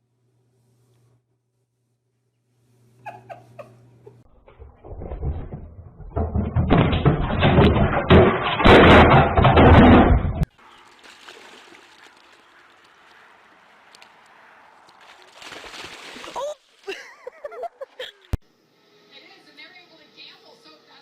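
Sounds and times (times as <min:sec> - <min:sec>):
rapid knocking and banging: 0:04.5 - 0:10.5.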